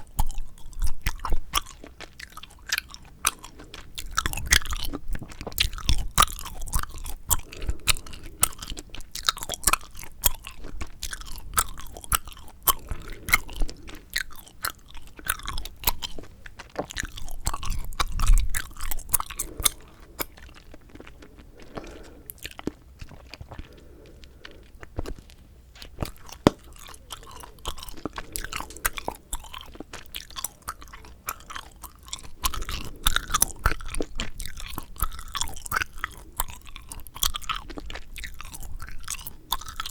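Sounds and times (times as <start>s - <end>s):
gum chewing clicks and smacks: 0.0s - 39.9s
gum snapping: 25.9s - 39.9s.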